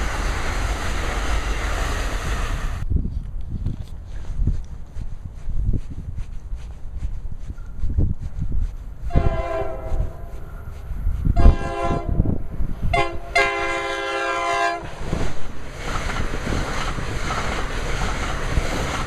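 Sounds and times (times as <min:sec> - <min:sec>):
train rushing past: 0:00.0 - 0:02.8, 0:09.1 - 0:19.0
wind buffeting microphone: 0:00.0 - 0:19.0
train horn blasts: 0:09.1 - 0:10.4, 0:11.4 - 0:14.9.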